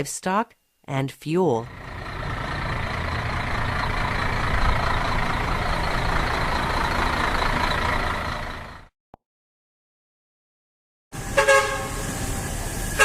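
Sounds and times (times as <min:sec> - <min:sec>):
heavy truck rumbling: 0:01.7 - 0:08.9, 0:11.2 - 0:13.0.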